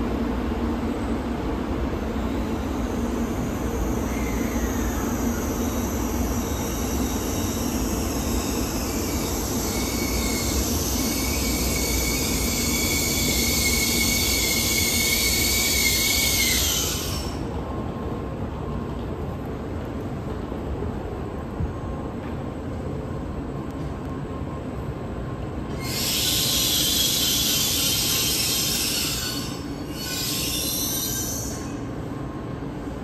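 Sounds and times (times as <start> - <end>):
train braking hiss and squeal: 0.6 - 17.8, 25.7 - 33.0.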